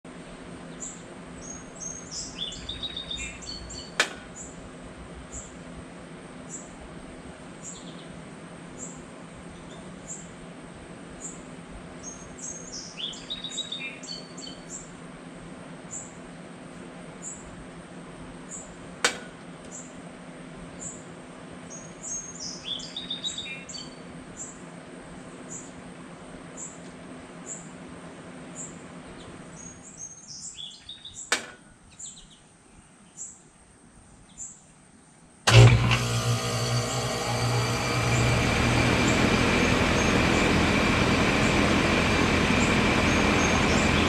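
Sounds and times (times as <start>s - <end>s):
small birds chirping: 0.6s - 4.6s, 7.6s - 10.4s, 11.2s - 15.0s, 20.7s - 24.7s, 25.3s - 25.8s, 26.5s - 33.6s, 39.0s - 44.0s
sharp click: 4.0s - 4.3s.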